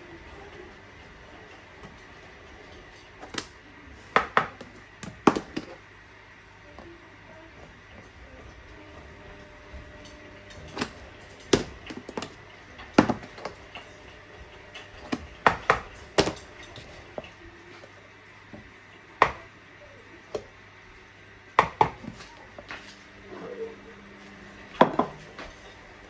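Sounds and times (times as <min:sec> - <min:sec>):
utensils clinking against dishes: 0:08.0 - 0:18.0, 0:22.0 - 0:26.0.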